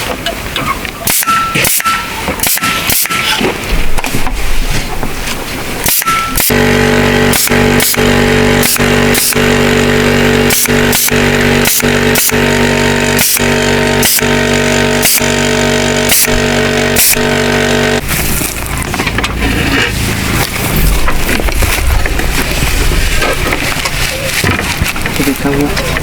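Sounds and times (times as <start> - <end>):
sharp ticks: 1.1 - 3.4, 5.8 - 6.6, 7.3 - 9.6, 10.4 - 12.5, 13.2 - 14.4, 16.1 - 16.4
motor running steadily: 5.8 - 26.0.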